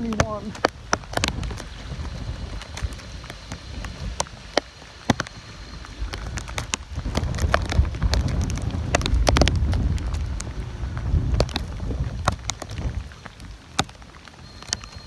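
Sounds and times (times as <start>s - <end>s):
rain drops ticking on microphone: 0.0s - 15.0s
wind buffeting microphone: 0.0s - 15.0s.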